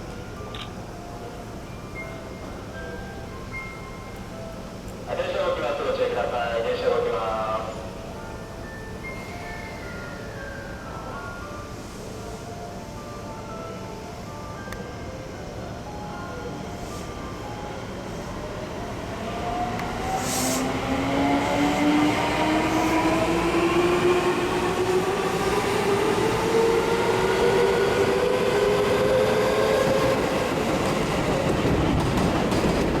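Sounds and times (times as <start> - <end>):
wheels rumbling on rail: 19.4 - 33.0.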